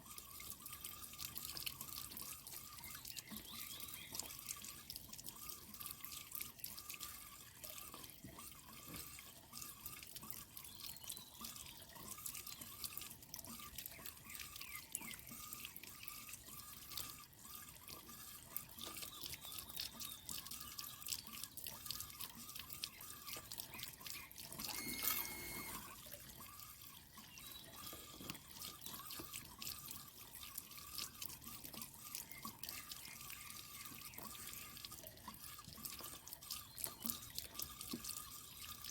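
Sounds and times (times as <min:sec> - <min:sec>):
water dripping and trickling: 0:00.0 - 0:38.9
short high-pitched sound: 0:24.6 - 0:25.9.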